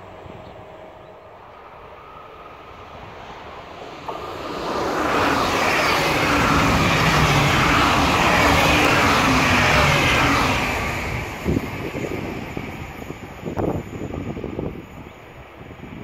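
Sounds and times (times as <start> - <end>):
electric train passing: 0.0 - 16.0
wheels rumbling on rails: 3.7 - 15.8.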